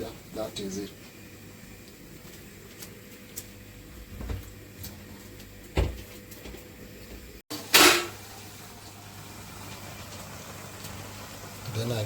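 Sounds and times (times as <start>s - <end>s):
pots and lids clattering: 7.6s - 8.2s.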